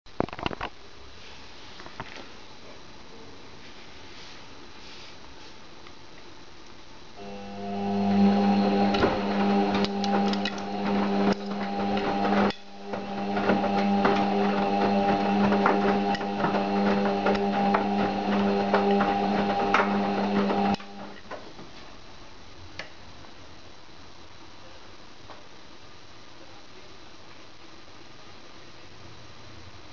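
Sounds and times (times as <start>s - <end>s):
washing machine humming: 7.2s - 21.6s
washing machine rattling and clicking: 8.8s - 21.1s.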